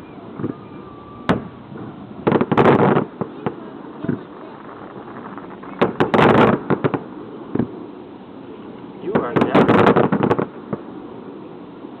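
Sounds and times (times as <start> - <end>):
fireworks exploding: 0.4 - 7.9, 9.0 - 11.0
fireworks crackling: 1.3 - 11.3.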